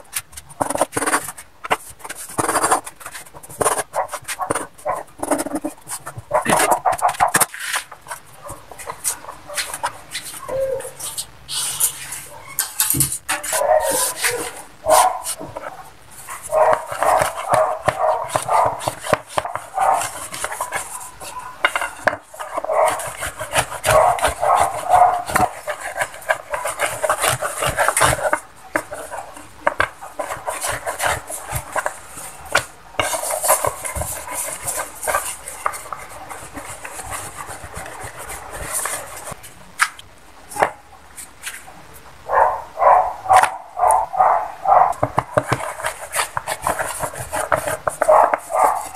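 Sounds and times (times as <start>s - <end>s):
rolling pin rolling over wooden board: 16.5s - 39.4s, 44.7s - 48.9s.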